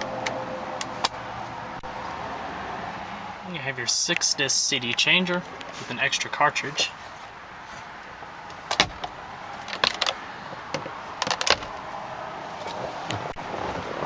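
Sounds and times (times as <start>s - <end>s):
clicks and clatters of car fittings: 8.5s - 11.8s.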